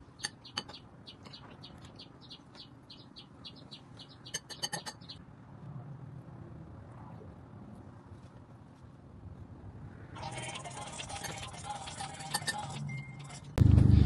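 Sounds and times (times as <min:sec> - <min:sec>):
bird chirping: 0:00.0 - 0:05.2
fork clinking on glass bowl: 0:04.3 - 0:05.1.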